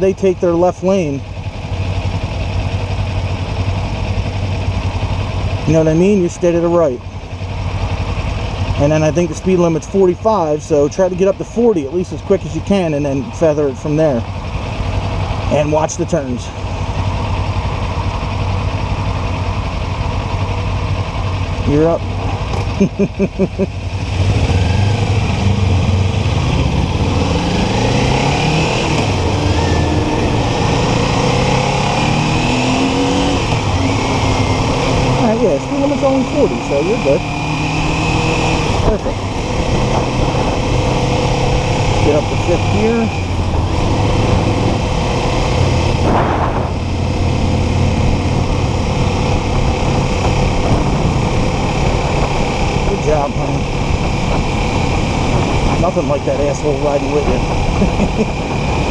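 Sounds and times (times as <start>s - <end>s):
motorcycle engine accelerating: 0.0s - 58.9s
wind noise: 38.0s - 41.7s, 43.1s - 47.3s, 47.9s - 56.5s
short rushing sound: 46.0s - 46.9s.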